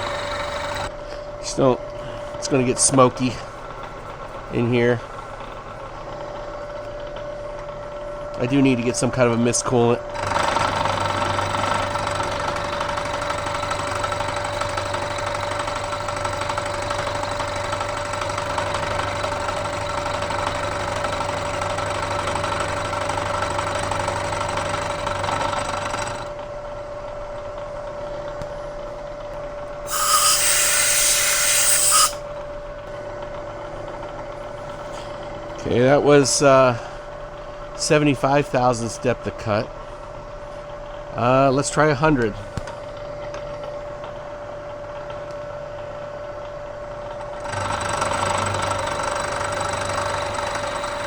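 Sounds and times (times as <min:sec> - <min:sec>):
milling machine cutting metal: 0:00.0 - 0:00.9, 0:29.9 - 0:32.2, 0:47.4 - 0:51.0
loud hiss: 0:29.9 - 0:32.2.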